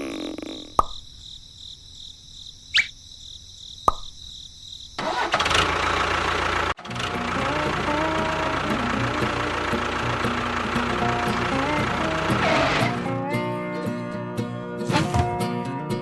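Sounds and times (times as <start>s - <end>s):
engine-like running noise: 5.0s - 13.0s.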